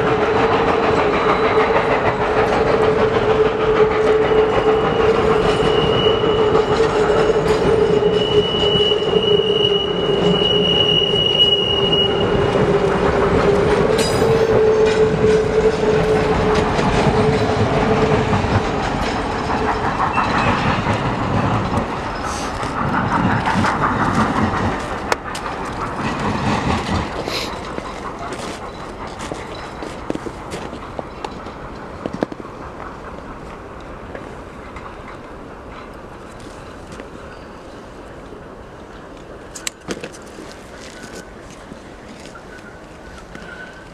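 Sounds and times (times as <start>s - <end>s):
wheels clattering on track: 0.0s - 37.8s
train wheels squealing: 0.1s - 24.7s, 25.9s - 31.6s, 37.1s - 38.1s, 40.2s - 41.4s, 42.2s - 43.9s.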